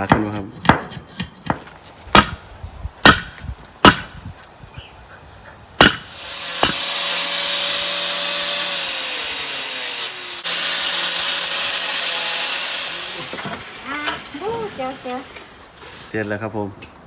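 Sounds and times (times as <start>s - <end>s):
wood chopping strikes: 0.0s - 4.3s, 5.8s - 7.2s
rasping sawing noise: 5.4s - 15.3s.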